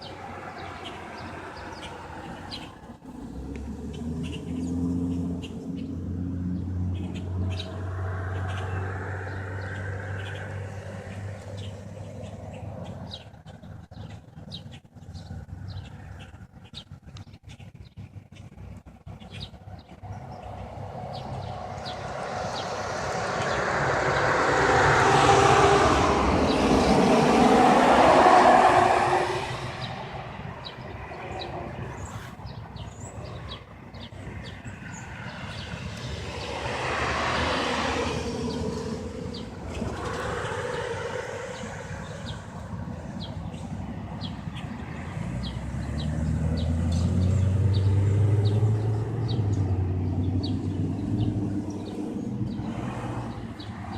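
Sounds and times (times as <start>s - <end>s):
low engine rumble: 0.0s - 53.9s
passing traffic: 0.0s - 53.9s.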